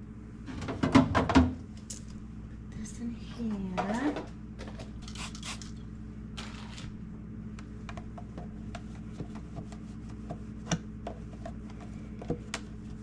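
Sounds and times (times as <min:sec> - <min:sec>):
refrigerator hum: 0:00.0 - 0:13.0.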